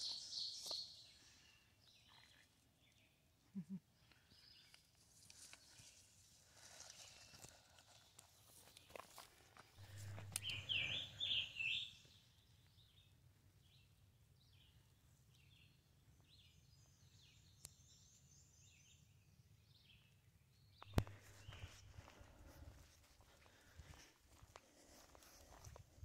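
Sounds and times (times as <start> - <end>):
songbird singing: 0.0 - 7.7, 8.6 - 22.7.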